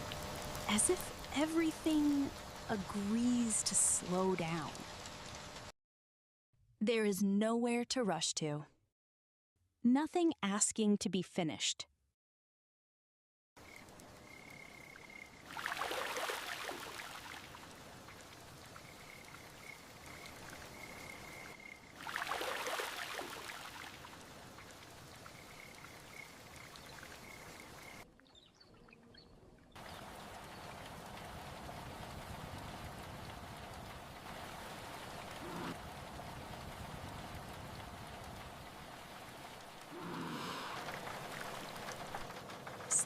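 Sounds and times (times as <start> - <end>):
steady rainfall: 0.0 - 5.7, 14.8 - 28.0, 29.8 - 43.0.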